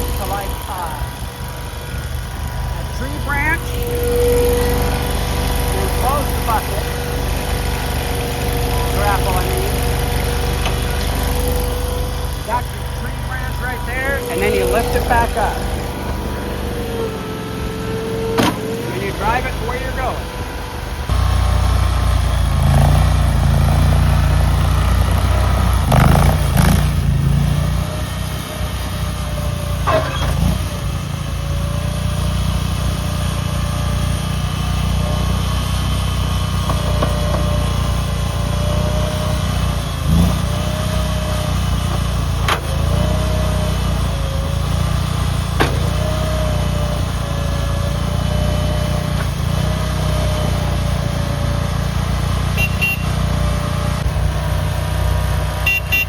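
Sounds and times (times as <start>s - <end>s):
skid loader engine running: 0.0s - 56.0s
thin wavering tone: 1.2s - 8.4s
sharp metal knocks: 18.3s - 18.7s.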